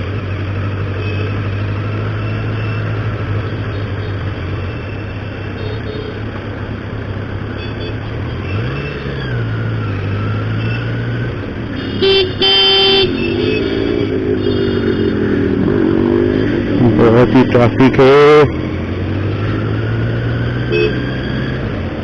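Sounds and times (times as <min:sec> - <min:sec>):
vehicle horn: 0:11.8 - 0:15.2, 0:20.7 - 0:21.0.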